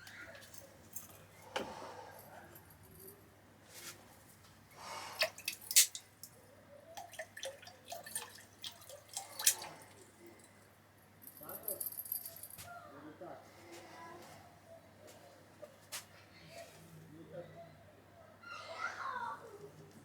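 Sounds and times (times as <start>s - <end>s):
water dripping and splashing: 5.2s - 10.1s.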